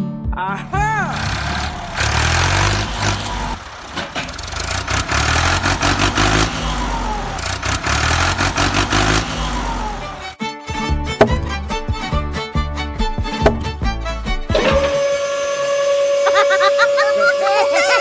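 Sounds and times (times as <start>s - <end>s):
engine running and revving: 1.0s - 10.4s, 14.5s - 18.0s
rattling clatter: 1.1s - 10.4s.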